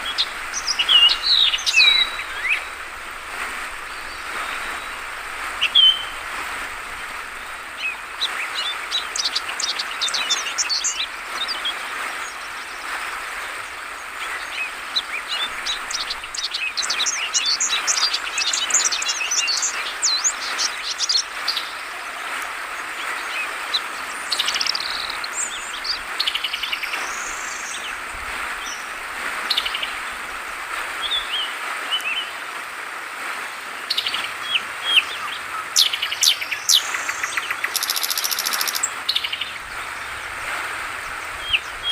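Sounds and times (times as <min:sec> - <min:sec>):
birds chirping: 0:00.0 - 0:12.8, 0:33.9 - 0:41.9
flowing water: 0:00.0 - 0:41.9.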